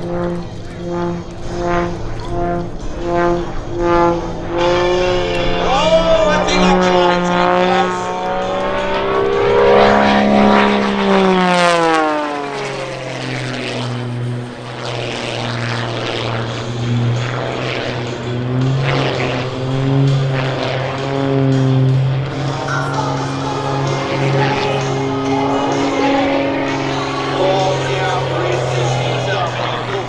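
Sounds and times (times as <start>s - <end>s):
airplane engine and propeller: 0.0s - 30.0s.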